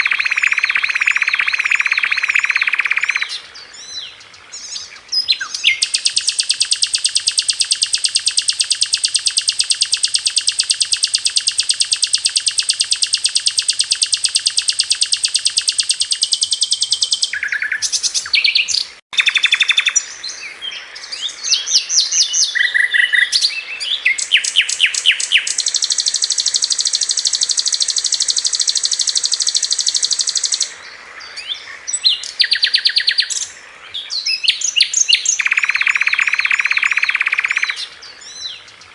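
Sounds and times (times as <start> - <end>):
bird fast trill: 0.0 - 3.4, 5.4 - 20.1, 21.5 - 30.7, 34.3 - 37.8
bird chirps and whistles: 0.0 - 4.0, 4.6 - 20.1, 21.5 - 30.7, 32.0 - 33.4, 34.2 - 38.4.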